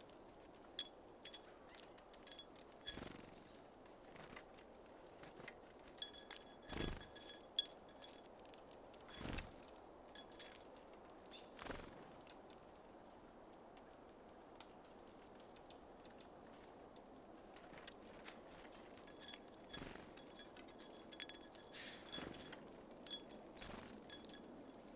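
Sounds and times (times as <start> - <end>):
scattered ticks: 6.0 - 9.6, 10.2 - 10.7, 19.0 - 24.9
small birds chirping: 9.1 - 10.6, 18.5 - 24.9.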